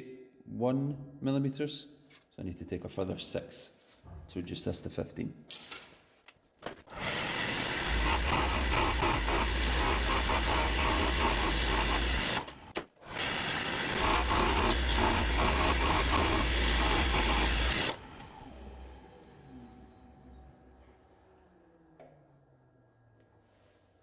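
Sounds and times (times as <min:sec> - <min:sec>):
lathe tool scraping wood: 0:06.9 - 0:18.8.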